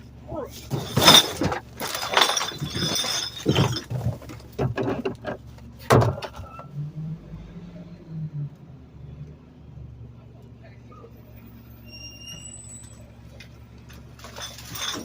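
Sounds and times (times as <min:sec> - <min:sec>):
truck engine and hydraulics hum: 0:00.0 - 0:15.0
trash crushing and breaking: 0:00.5 - 0:06.4, 0:14.0 - 0:15.0.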